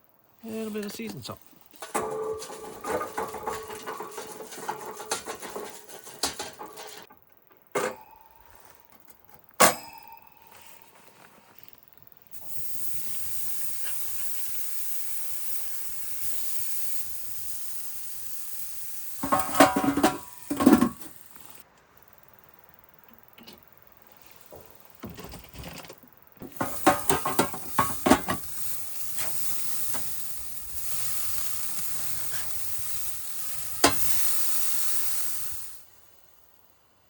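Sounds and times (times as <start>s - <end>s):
patties sizzling on a grill: 12.3s - 21.6s, 26.4s - 37.0s.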